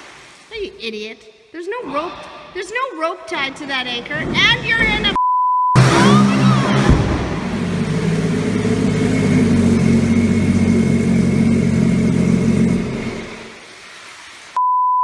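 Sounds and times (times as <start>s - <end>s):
engine running steadily: 5.8s - 13.6s.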